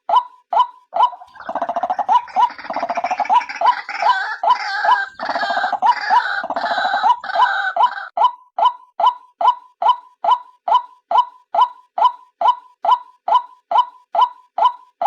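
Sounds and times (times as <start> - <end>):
pulsing gurgling croak: 1.1 - 8.0.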